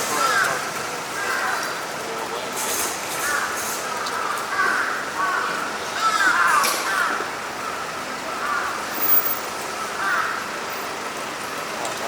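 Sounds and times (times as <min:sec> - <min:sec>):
city street noise: 0:00.0 - 0:12.0
crows cawing: 0:00.2 - 0:01.8, 0:03.2 - 0:09.0, 0:09.7 - 0:10.6.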